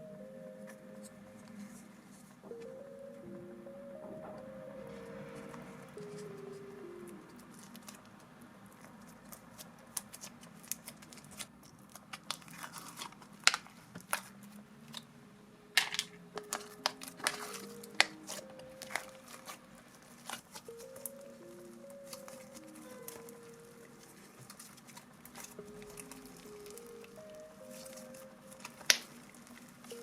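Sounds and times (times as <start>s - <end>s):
soft background music: 0.0s - 30.0s
slime squishing with sticky pops: 7.0s - 15.1s, 15.8s - 30.0s.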